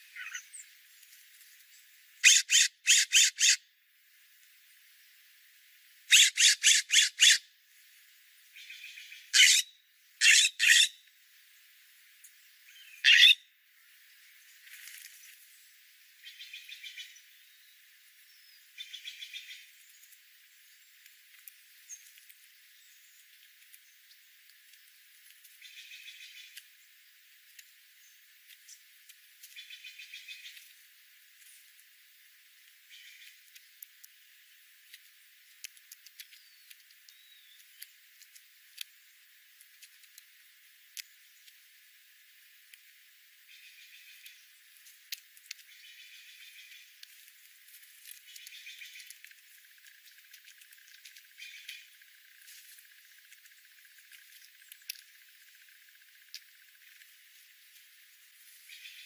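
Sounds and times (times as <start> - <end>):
faint bird chirps: 0.0 - 0.8, 1.6 - 3.6, 6.1 - 7.5, 8.5 - 11.6, 12.2 - 13.5, 16.0 - 24.4, 25.6 - 27.0, 32.8 - 33.8, 36.1 - 38.0, 43.4 - 44.7, 50.0 - 52.0, 58.6 - 59.0
background hiss: 0.0 - 59.0
bird rapid chattering call: 2.2 - 3.6, 6.1 - 7.4, 9.4 - 10.9, 13.0 - 13.4.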